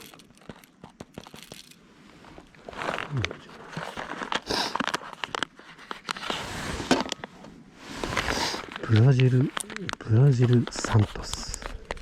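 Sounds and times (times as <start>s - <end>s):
small clicks and knocks: 0.0s - 1.8s, 3.9s - 6.2s
packaging rustling: 0.0s - 7.4s.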